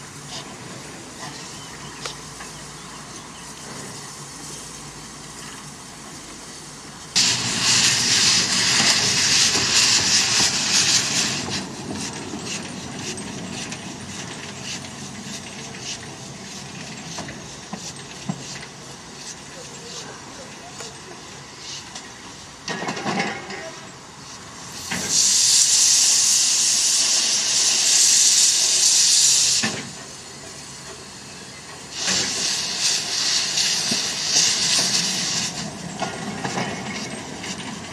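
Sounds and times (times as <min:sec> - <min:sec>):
loud steam hiss: 0:00.0 - 0:23.1, 0:24.0 - 0:37.9
steam locomotive regular beat: 0:07.2 - 0:20.1, 0:31.8 - 0:37.9.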